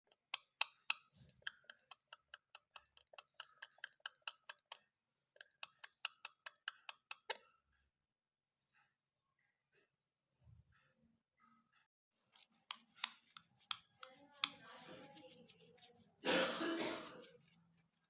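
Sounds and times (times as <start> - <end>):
parrot clicking: 0.1 - 4.8, 5.4 - 7.4.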